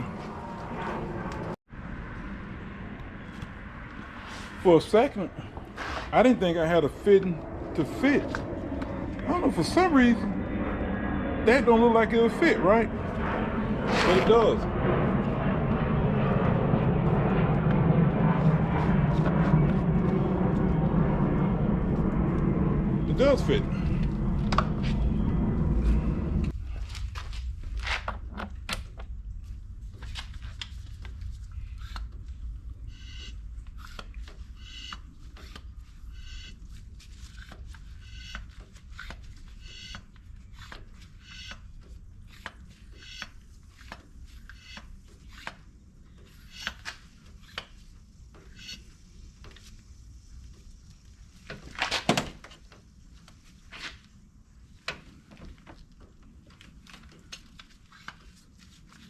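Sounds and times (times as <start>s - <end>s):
low steady rumble: 0.0s - 45.1s.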